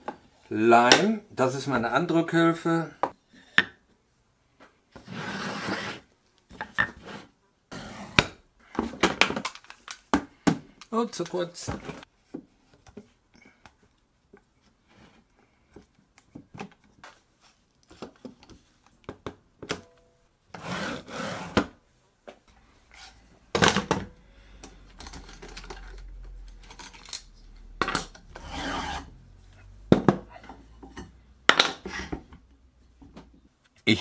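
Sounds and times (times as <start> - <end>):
wood scraping on wood: 5.0 - 6.1, 20.6 - 21.7, 28.2 - 29.7.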